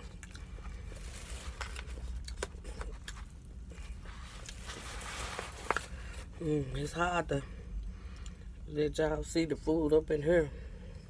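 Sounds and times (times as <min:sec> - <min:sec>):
chewing and smacking: 0:00.0 - 0:05.0
low steady hum: 0:00.0 - 0:11.0.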